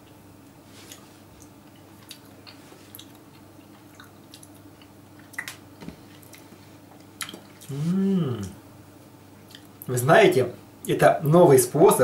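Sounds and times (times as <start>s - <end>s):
faint steady hum: 0.0s - 12.0s
man chewing wet mouth clicks: 0.9s - 7.7s.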